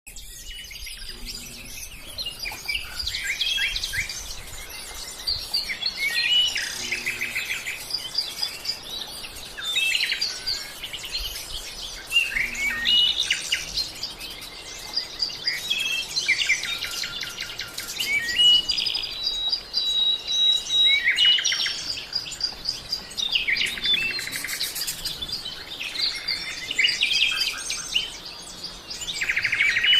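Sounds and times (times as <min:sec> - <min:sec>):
birds chirping and trilling: 0:00.1 - 0:29.9
long held bird whistle: 0:09.5 - 0:13.8, 0:14.4 - 0:22.6, 0:23.3 - 0:28.2.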